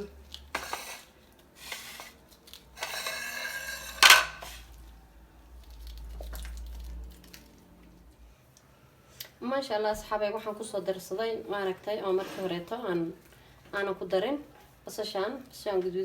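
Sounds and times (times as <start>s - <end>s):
dishes clattering: 2.8s - 4.6s
dishes and utensils clinking: 2.8s - 4.7s, 12.1s - 12.8s.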